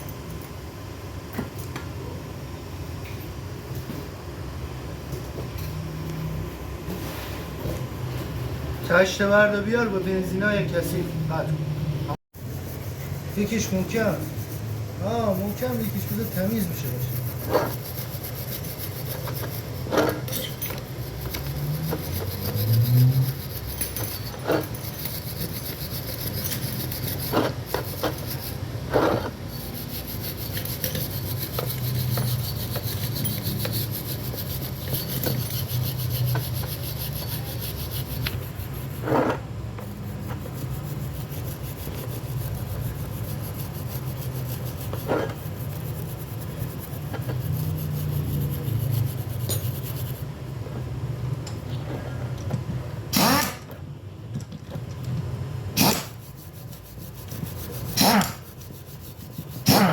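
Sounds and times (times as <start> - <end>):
hand rubbing metal parts: 12.4 - 50.5, 55.8 - 59.9.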